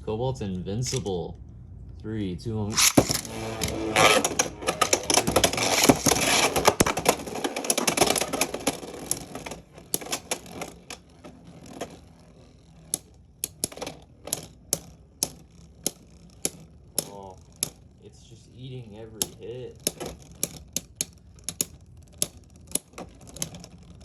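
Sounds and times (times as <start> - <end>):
spinning tops clashing: 2.7 - 18.0.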